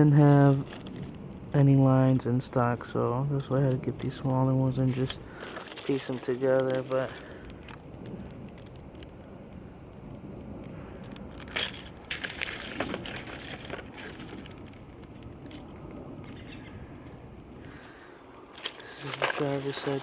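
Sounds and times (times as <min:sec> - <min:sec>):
rustling handling noise: 0:00.0 - 0:01.3, 0:01.9 - 0:09.2, 0:11.0 - 0:16.4, 0:17.7 - 0:20.0.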